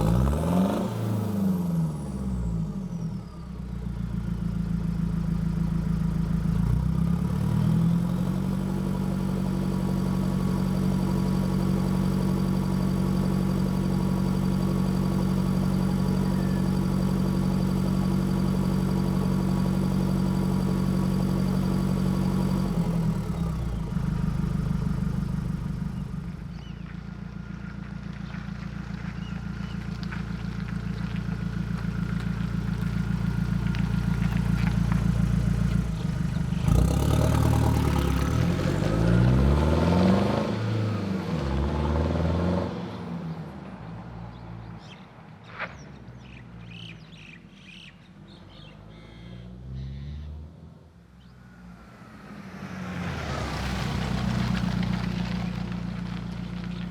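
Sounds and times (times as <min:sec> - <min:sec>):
diesel engine exhaust note: 0:08.3 - 0:26.7.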